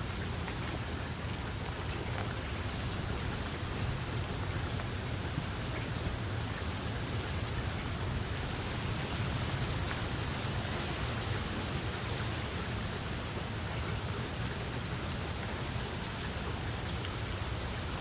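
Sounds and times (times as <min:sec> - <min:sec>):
steady rain hiss: 0:00.0 - 0:18.0.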